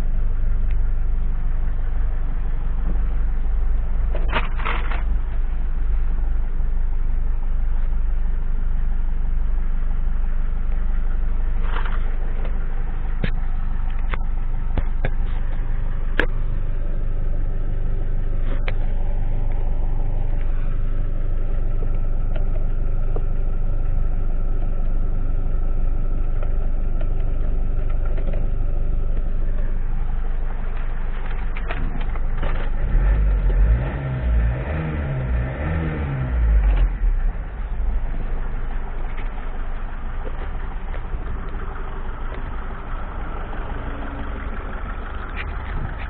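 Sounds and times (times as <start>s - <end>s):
diesel engine idling: 0.0s - 46.0s
sharp clicks and knocks: 13.2s - 16.4s, 30.6s - 32.8s.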